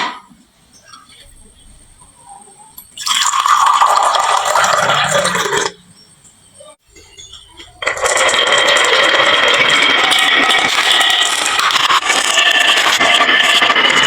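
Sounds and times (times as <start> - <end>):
marbles clattering down wooden run: 7.8 - 14.0.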